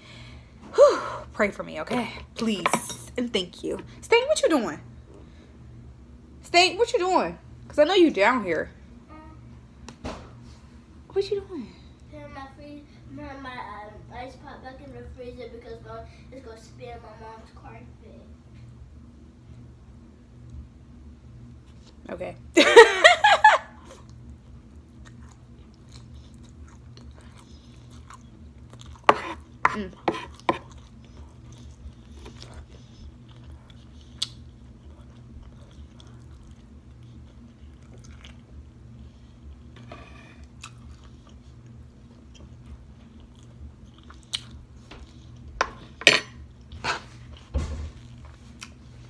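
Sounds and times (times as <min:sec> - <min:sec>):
faint low hum: 0:00.0 - 0:49.0
person chewing and smacking: 0:23.9 - 0:29.6, 0:30.2 - 0:38.6, 0:40.4 - 0:45.6, 0:48.0 - 0:48.8.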